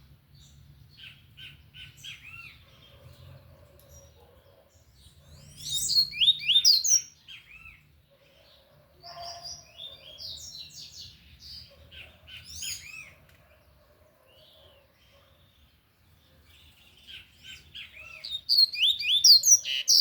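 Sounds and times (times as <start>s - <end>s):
bird singing whistled notes: 5.3s - 7.8s, 17.1s - 20.0s.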